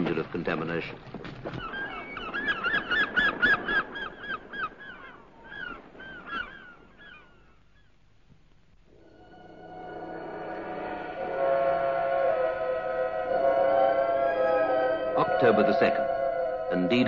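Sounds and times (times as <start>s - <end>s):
bird calling fast repeated calls: 1.5s - 7.9s.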